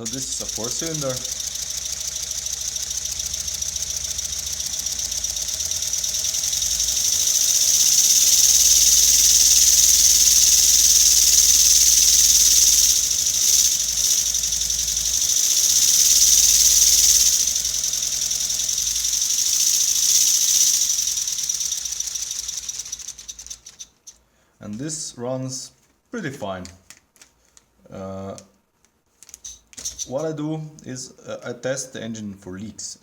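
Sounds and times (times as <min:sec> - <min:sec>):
high air hiss: 0:00.0 - 0:23.4
toy air engine clattering: 0:00.0 - 0:24.2, 0:29.2 - 0:30.3.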